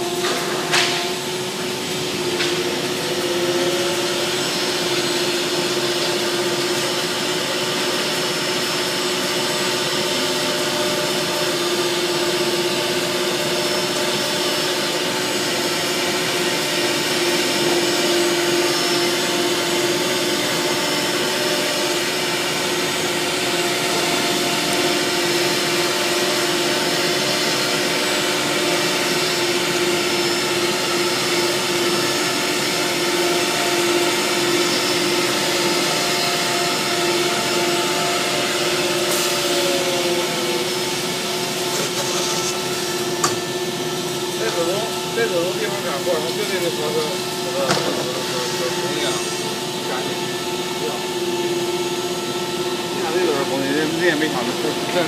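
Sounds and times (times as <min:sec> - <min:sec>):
engraving machine whining: 0:00.0 - 0:55.0.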